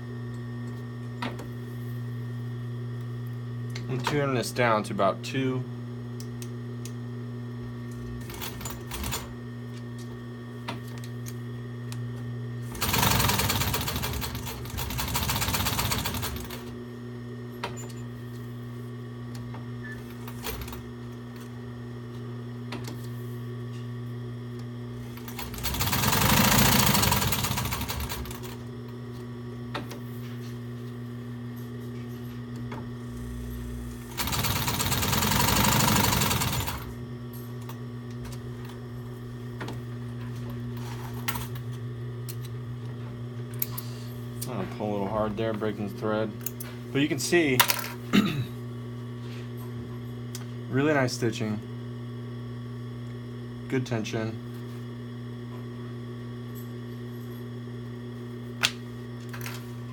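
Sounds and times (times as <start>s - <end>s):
steady hum: 0.0s - 55.5s
sewing machine stitching: 12.7s - 16.6s, 25.2s - 28.6s, 34.1s - 36.9s.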